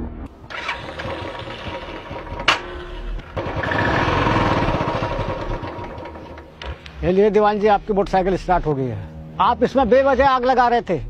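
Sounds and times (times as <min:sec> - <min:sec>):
motorcycle engine revving: 0:00.4 - 0:06.8.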